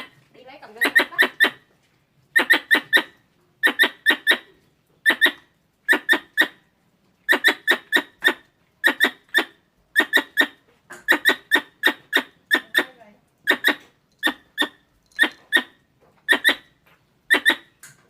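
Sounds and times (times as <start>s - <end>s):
squirrel chirping: 0.0s - 1.6s, 2.3s - 6.6s, 7.3s - 17.9s.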